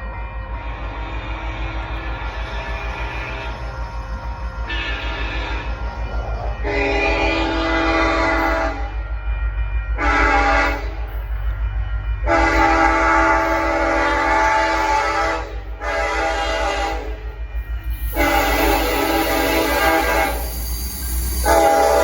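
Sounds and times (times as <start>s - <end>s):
train rumbling past: 0.0s - 22.0s
locomotive air horn: 4.6s - 9.0s, 10.0s - 11.1s, 12.2s - 22.0s.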